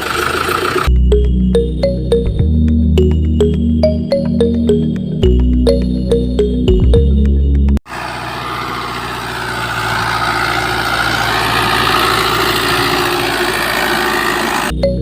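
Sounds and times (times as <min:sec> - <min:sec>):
motor running: 0:07.9 - 0:14.7.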